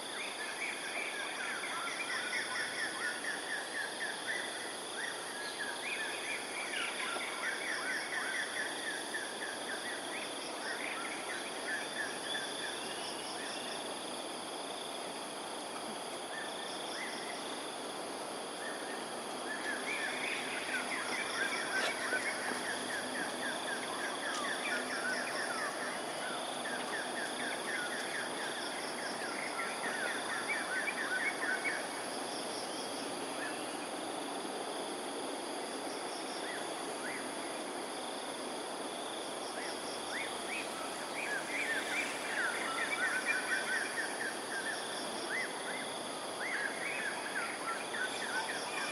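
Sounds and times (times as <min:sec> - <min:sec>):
insect drone: 0:00.0 - 0:48.9.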